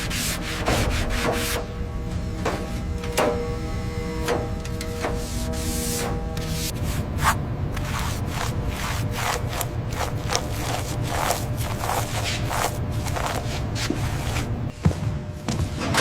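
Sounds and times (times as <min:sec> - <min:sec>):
scraping strokes: 0:00.0 - 0:01.6, 0:05.0 - 0:14.7.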